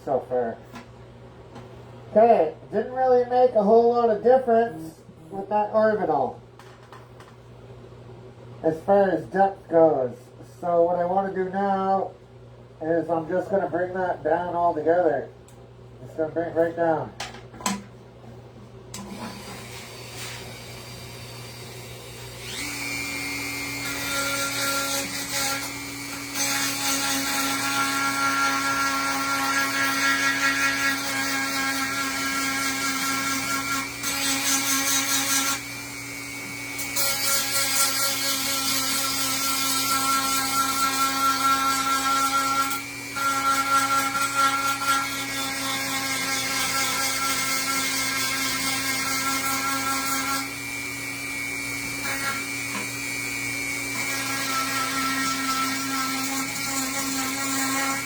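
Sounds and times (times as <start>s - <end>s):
rotary tool sanding wood: 54.0s - 58.0s.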